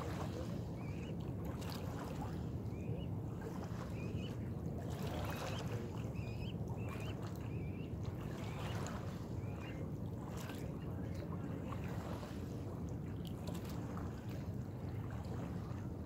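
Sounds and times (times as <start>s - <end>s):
steady low rumble: 2.2s - 11.8s
small bird chirping: 6.2s - 7.9s.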